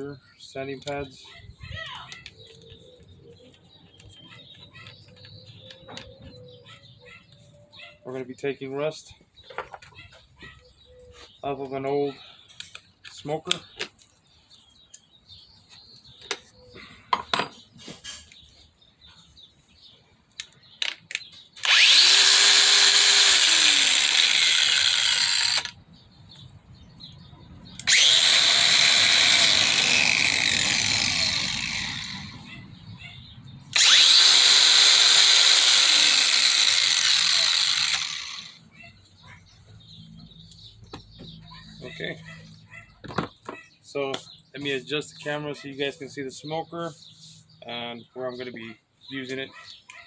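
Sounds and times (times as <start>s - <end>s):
angle grinder sanding: 21.6s - 25.7s, 27.8s - 32.5s, 33.8s - 38.6s.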